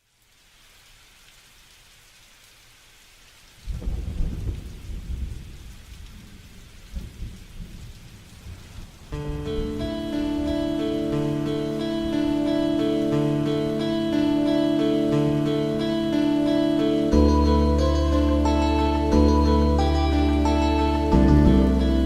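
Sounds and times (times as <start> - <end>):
rain hiss: 0.0 - 22.0
thunder clap rumbling: 3.7 - 9.8
guitar: 9.2 - 22.0.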